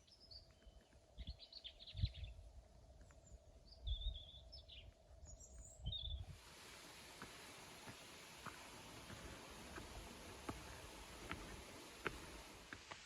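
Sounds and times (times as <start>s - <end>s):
songbird chirping: 0.0s - 12.6s.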